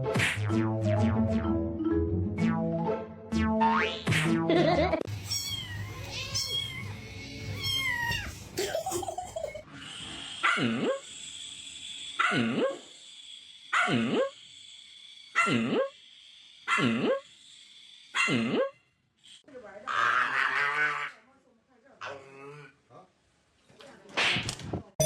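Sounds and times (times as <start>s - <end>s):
pet animal calling: 5.1s - 8.4s.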